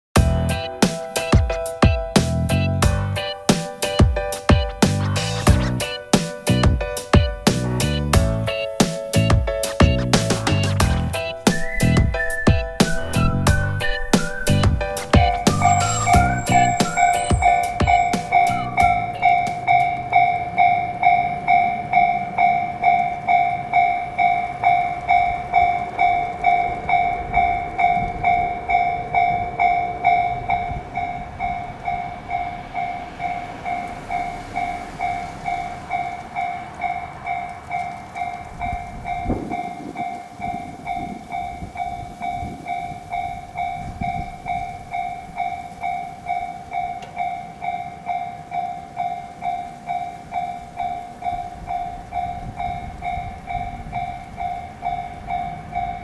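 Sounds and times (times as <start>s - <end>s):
level crossing two-tone bell: 15.2s - 21.8s.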